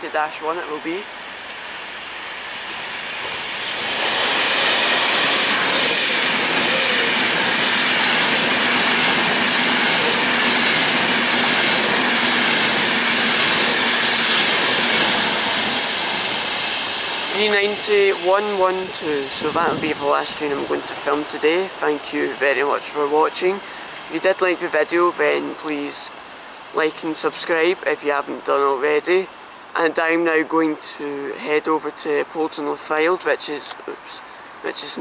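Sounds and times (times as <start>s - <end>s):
electric train passing: 0.0s - 27.0s.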